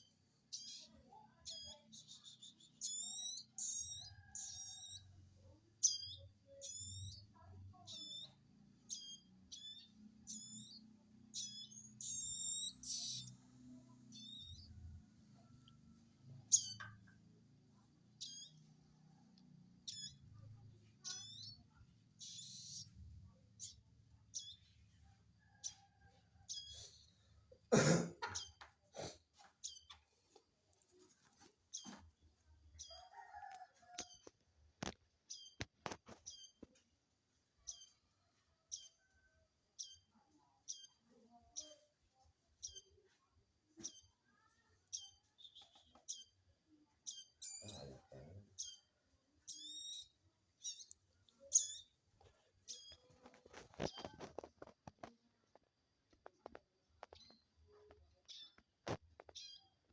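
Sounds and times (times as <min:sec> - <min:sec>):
baby birds begging cheeps: 0:00.0 - 0:14.8, 0:19.8 - 0:20.4, 0:47.0 - 0:52.0.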